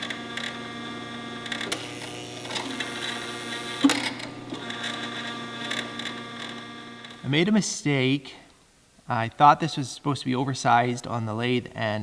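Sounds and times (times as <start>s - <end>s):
electric hum of shop machine: 0.0s - 7.3s.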